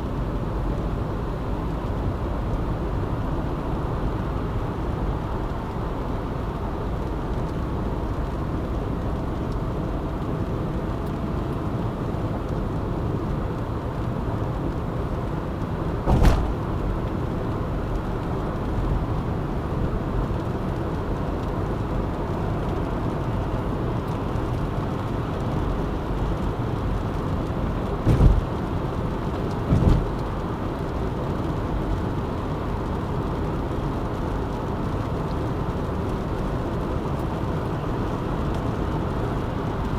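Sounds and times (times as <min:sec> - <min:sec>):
car road noise: 0:00.0 - 0:39.9
brief thumps: 0:16.1 - 0:17.0, 0:28.1 - 0:28.6, 0:29.7 - 0:30.2.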